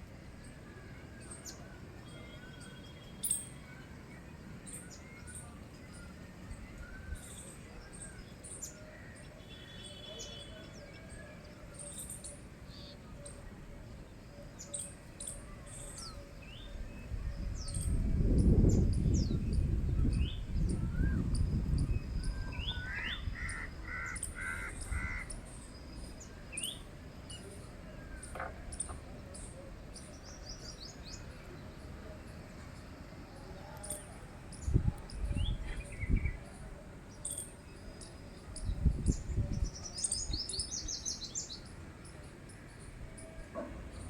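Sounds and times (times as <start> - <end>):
crow cawing: 22.9 - 25.3.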